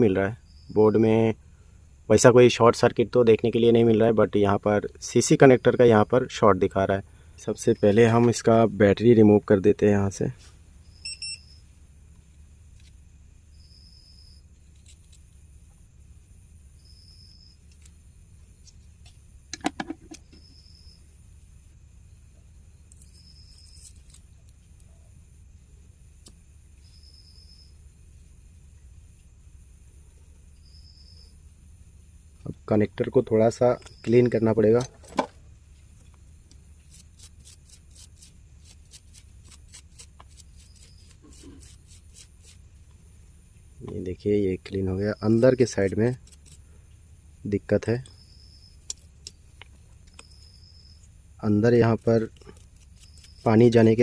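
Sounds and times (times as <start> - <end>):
low steady hum: 0.0 - 54.0
faint high beep: 10.9 - 11.7
small tool scratching: 12.7 - 13.0, 14.5 - 15.4, 17.5 - 19.2, 22.9 - 24.9, 36.6 - 42.8, 45.1 - 46.7, 48.1 - 54.0.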